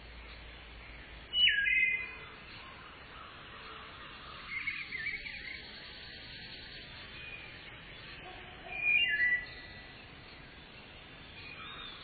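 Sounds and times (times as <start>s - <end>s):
faint steady hiss: 0.0s - 12.0s
warbling bird chirps: 1.3s - 2.2s, 4.3s - 12.0s.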